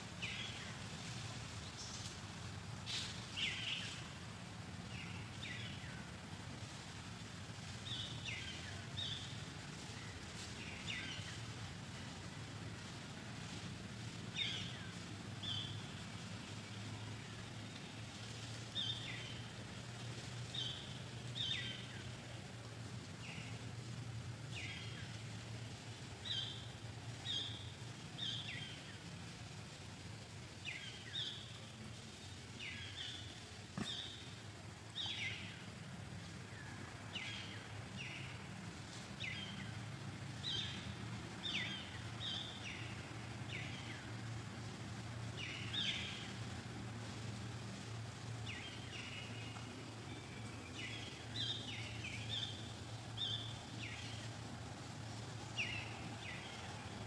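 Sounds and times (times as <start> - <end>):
steady low hum: 0.0 - 57.0
bird chirping: 48.4 - 54.3.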